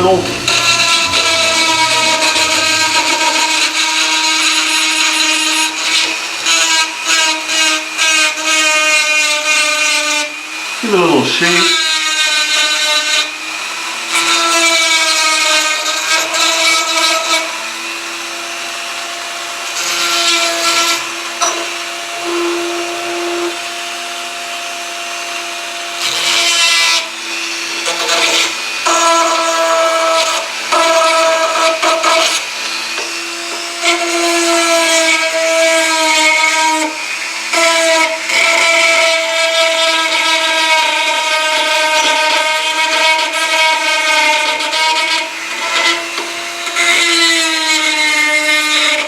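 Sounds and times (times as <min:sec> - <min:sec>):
rotary tool grinding metal: 0:00.0 - 0:17.6, 0:19.6 - 0:23.6, 0:26.0 - 0:49.0.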